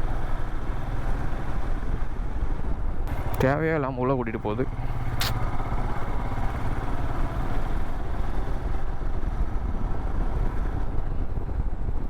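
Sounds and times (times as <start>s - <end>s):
road noise: 0.0s - 12.0s
motorcycle engine running: 3.1s - 8.8s
wind noise: 7.7s - 12.0s.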